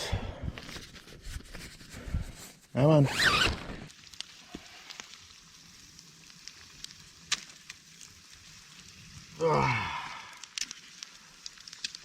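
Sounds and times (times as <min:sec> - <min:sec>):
campfire crackling and popping: 0:02.8 - 0:12.0.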